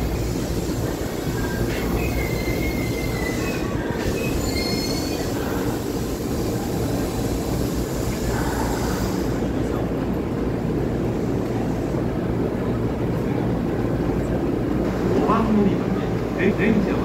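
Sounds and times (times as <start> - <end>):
train running gear rumbling: 0.0 - 17.0
faint wheel squeal: 1.4 - 5.7.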